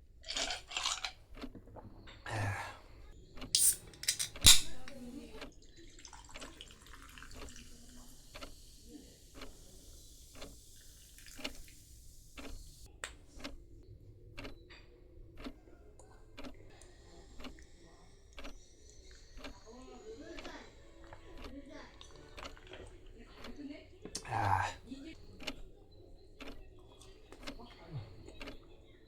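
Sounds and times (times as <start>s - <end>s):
carbonated drink fizzing: 0.2s - 1.2s, 5.6s - 12.3s.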